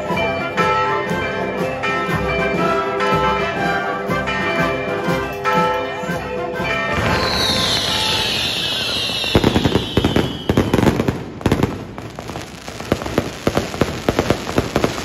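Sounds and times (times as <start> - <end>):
church bells ringing: 0.0 - 10.3.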